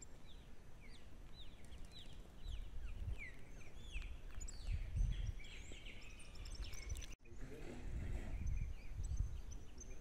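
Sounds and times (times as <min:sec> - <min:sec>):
wild birds calling: 0:00.0 - 0:07.2.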